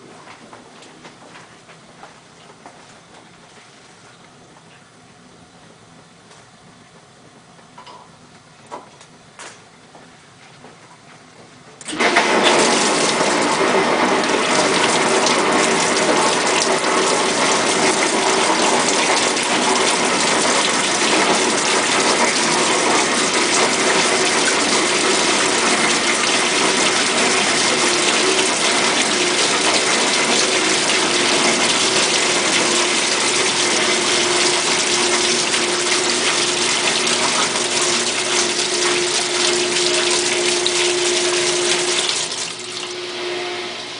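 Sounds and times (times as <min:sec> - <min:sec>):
dishwasher pump motor humming: 0:11.7 - 0:43.9
water spraying inside dishwasher: 0:11.8 - 0:43.9.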